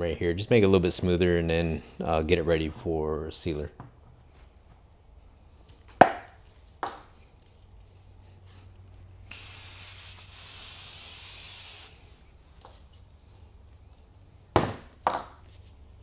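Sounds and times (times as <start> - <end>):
spray cleaner hissing: 9.3 - 12.1.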